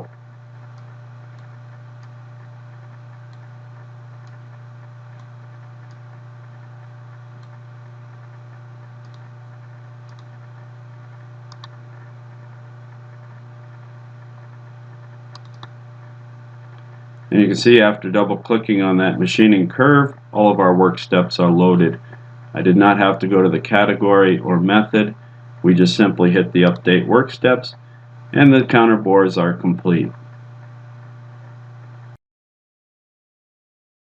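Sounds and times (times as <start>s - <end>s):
low electrical hum: 0.0s - 32.2s
computer mouse clicks: 4.2s - 4.4s, 7.4s - 7.6s, 9.0s - 9.3s, 10.1s - 10.4s, 11.5s - 11.8s, 15.3s - 15.7s.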